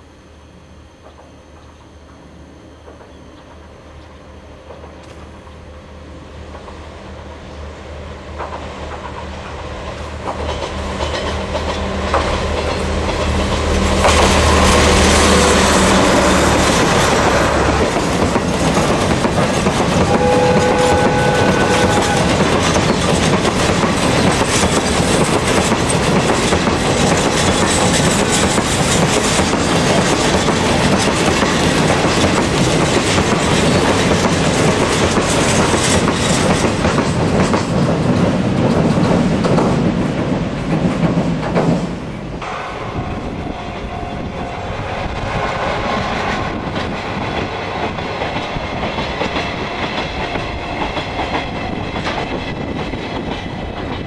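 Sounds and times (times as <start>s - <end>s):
train wheels clattering: 8.3s - 54.0s
short tone: 20.1s - 23.0s.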